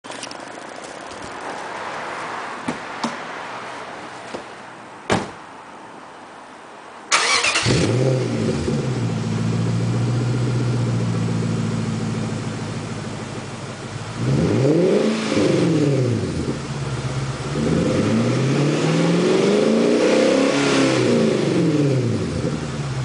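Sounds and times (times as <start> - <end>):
thump: 5.1 - 5.4
car engine starting and idling: 7.1 - 18.6.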